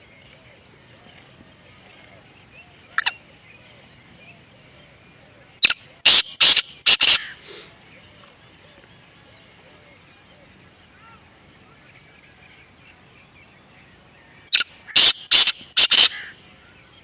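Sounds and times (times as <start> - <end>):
bird harsh calls: 2.6 - 4.8, 5.6 - 10.1, 14.5 - 17.0.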